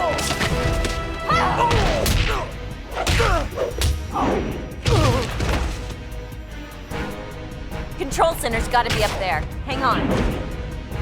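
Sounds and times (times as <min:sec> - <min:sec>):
orchestral music: 0:00.0 - 0:11.0
grunts or cries: 0:01.3 - 0:05.4
cartoon punches landing: 0:01.7 - 0:04.1, 0:04.8 - 0:05.8.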